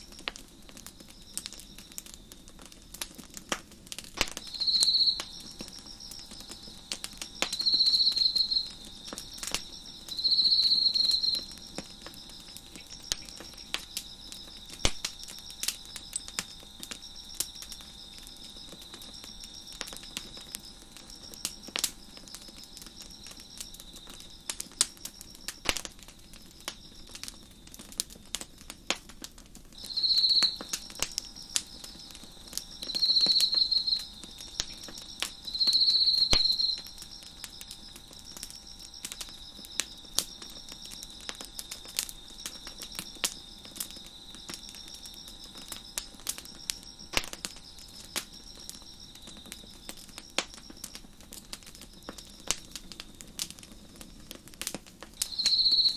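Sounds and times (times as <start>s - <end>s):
crickets chirping: 0.0s - 55.9s
wood fire crackling and popping: 0.0s - 55.9s
close high chirping bursts: 4.4s - 6.8s, 7.4s - 14.8s, 29.8s - 39.7s, 55.2s - 55.9s.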